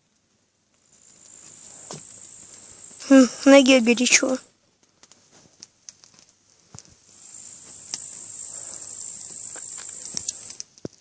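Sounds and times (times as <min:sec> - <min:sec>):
campfire crackling and popping: 0:00.0 - 0:11.0
high-pitched hiss: 0:00.8 - 0:04.5, 0:06.8 - 0:10.8.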